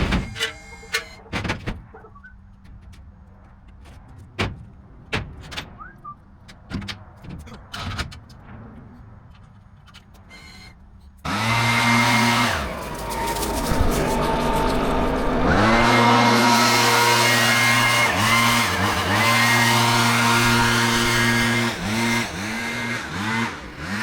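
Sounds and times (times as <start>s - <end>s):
knocks and clunks: 0.0s - 10.3s
loud engine under load: 11.3s - 24.0s.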